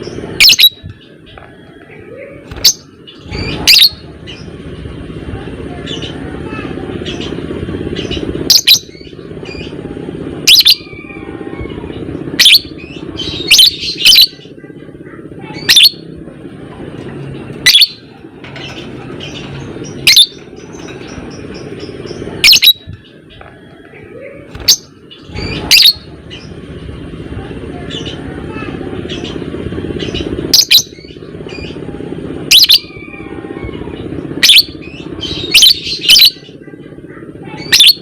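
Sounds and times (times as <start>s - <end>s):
bird high-pitched calls: 0.0s - 4.5s, 5.8s - 9.8s, 10.4s - 16.1s, 17.5s - 26.6s, 30.0s - 31.9s, 32.5s - 38.0s
low background hum: 0.0s - 38.0s.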